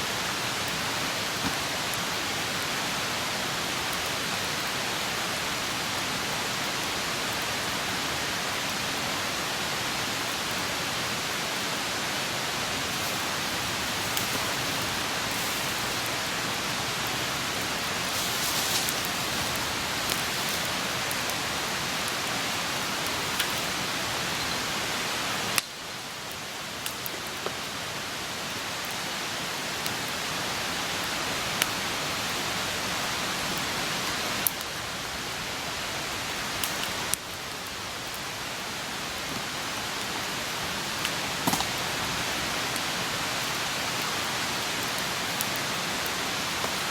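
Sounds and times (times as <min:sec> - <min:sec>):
campfire flames hissing: 0:00.0 - 0:46.9
fire crackling and popping: 0:00.2 - 0:02.7, 0:11.0 - 0:27.8, 0:36.6 - 0:46.9.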